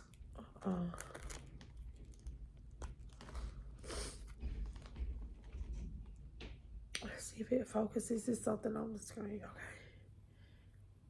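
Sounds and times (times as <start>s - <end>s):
crunching and chewing snack food: 0.0s - 5.8s
crinkling: 0.0s - 6.2s.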